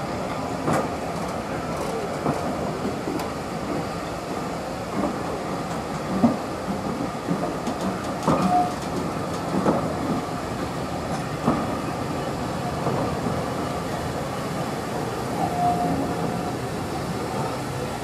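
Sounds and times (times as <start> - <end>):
train wheels rumbling on rails: 0.0 - 18.0
wheel squeal: 15.4 - 16.1.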